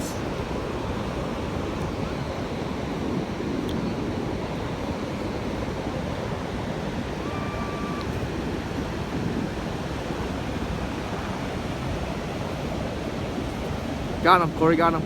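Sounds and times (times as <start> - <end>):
ocean surf on beach: 0.0 - 15.0
faint short tone: 7.2 - 8.2.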